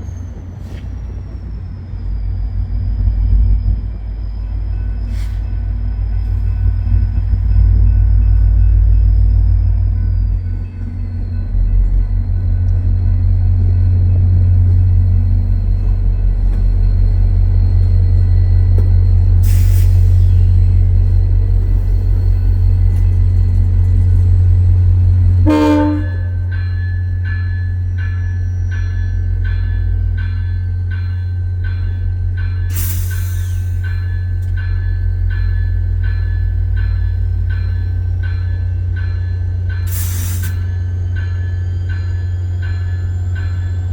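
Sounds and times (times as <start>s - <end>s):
diesel locomotive rumbling: 0.0s - 43.9s
locomotive bell ringing: 3.5s - 43.9s
air hiss: 19.4s - 20.6s, 32.7s - 33.9s, 39.9s - 40.7s
train horn toot: 25.4s - 26.6s.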